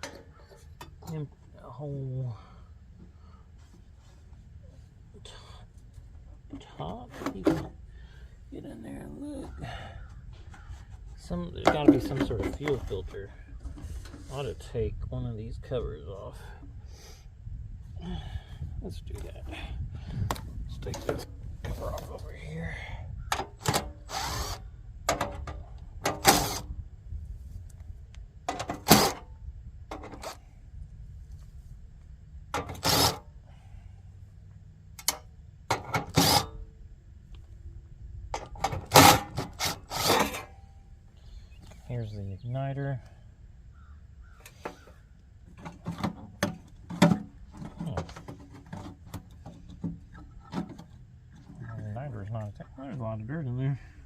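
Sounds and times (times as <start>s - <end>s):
parts clicking and knocking: 0.0s - 1.2s, 23.3s - 26.7s, 28.4s - 29.3s, 29.9s - 30.4s, 32.5s - 33.2s, 34.9s - 36.6s, 38.3s - 40.6s, 45.5s - 51.7s
power driver bursts: 23.7s - 24.6s, 26.2s - 26.7s.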